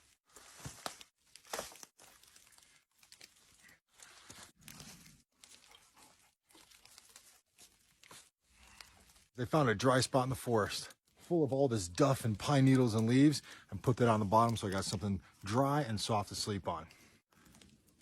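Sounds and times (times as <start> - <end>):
rustling and crunching branches: 0.0 - 18.0.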